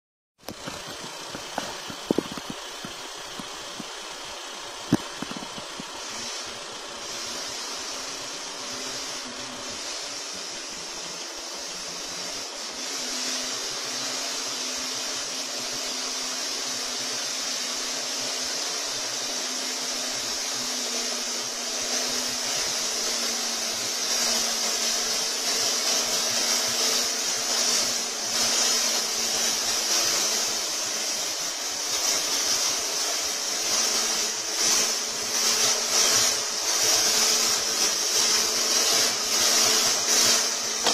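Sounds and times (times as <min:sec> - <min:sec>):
engine running: 0:00.4 - 0:40.9
hiss: 0:00.4 - 0:40.9.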